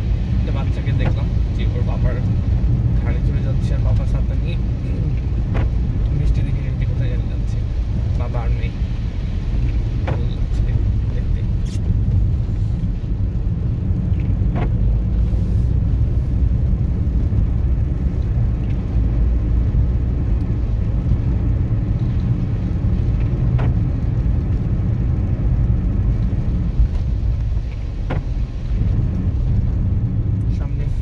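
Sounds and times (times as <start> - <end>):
car engine and tyre rumble: 0.0 - 31.0.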